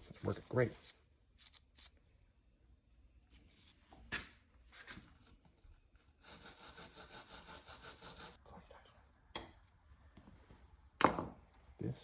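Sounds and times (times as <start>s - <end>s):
scratchy rubbing: 6.2s - 8.4s.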